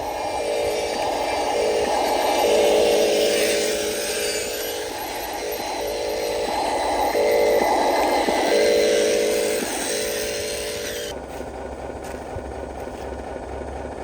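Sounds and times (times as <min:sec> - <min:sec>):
toy truck electric motor whining: 0:00.0 - 0:11.2.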